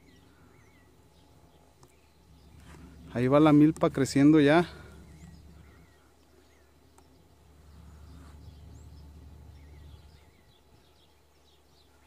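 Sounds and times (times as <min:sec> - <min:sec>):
faint bird chirps: 0:00.0 - 0:03.2, 0:04.2 - 0:12.0
low steady rumble: 0:00.0 - 0:12.0.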